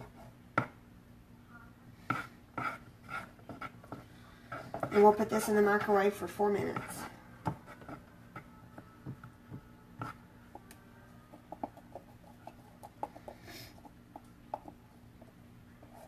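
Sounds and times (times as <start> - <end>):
faint steady hum: 0.0 - 16.0
utensil tapping baking dish: 11.4 - 13.4.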